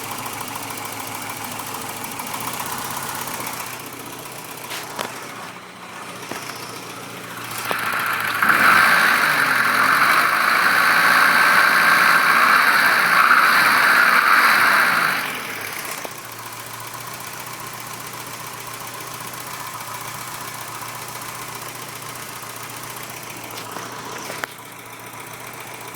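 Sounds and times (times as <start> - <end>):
engine running with a knock: 0.0 - 25.9.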